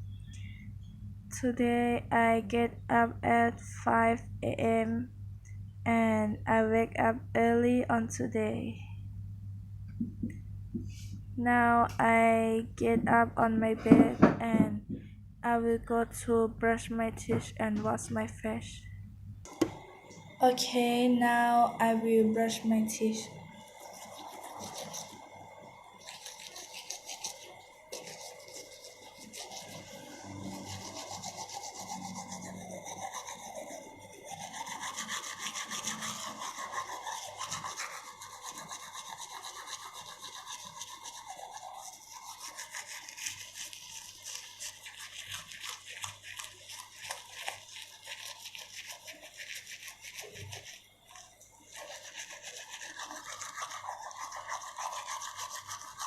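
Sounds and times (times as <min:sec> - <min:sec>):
toothbrush scrubbing teeth: 0:22.4 - 0:56.0.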